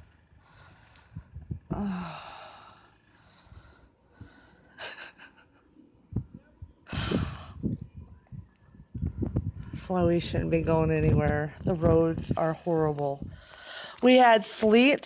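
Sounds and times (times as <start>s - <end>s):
person sighing and breathing out: 1.7s - 2.9s.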